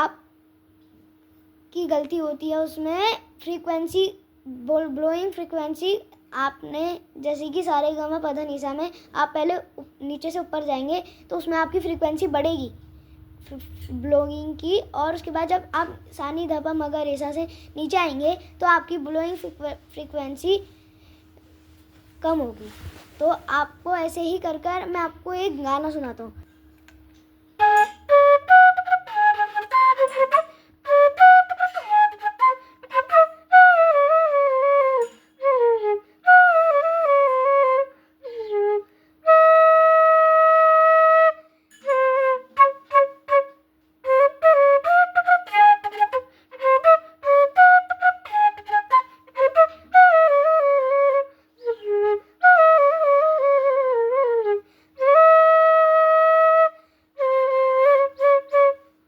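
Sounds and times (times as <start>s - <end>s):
flute melody: 27.6s - 59.0s.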